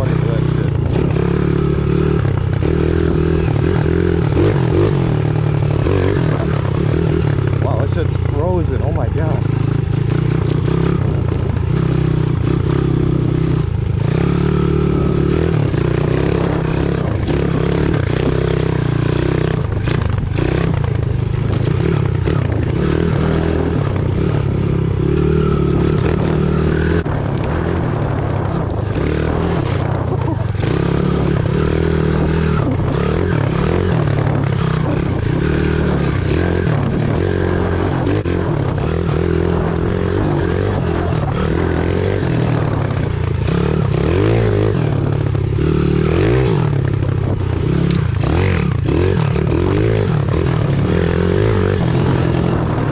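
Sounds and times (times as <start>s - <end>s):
motorbike engine revving: 0.0s - 52.9s.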